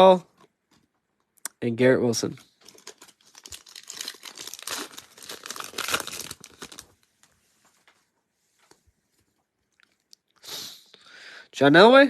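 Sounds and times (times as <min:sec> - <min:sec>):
plastic packaging crinkling: 0:02.4 - 0:07.4.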